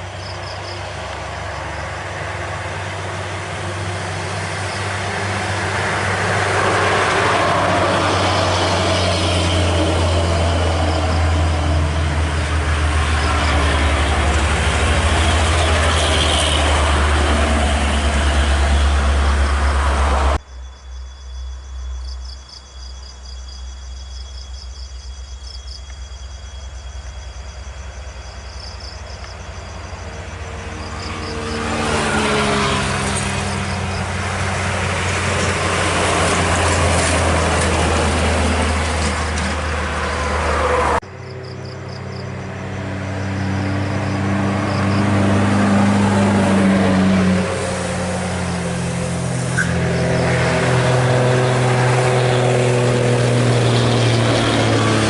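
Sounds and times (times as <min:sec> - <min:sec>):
heavy vehicle engines passing: 0:00.0 - 0:20.4, 0:25.9 - 0:55.0.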